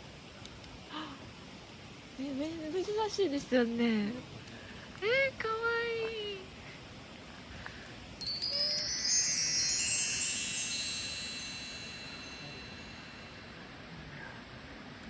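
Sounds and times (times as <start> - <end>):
small metal chimes ringing: 8.2 - 13.6.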